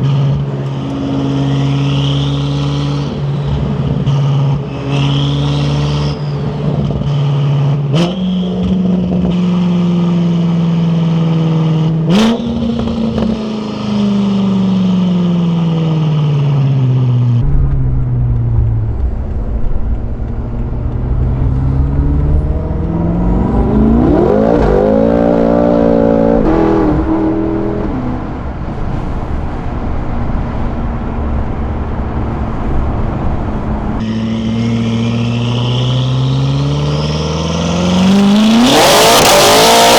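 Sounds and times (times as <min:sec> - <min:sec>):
car engine revving while driving: 0:00.0 - 0:39.9
sharp exhaust cracks: 0:17.4 - 0:23.6.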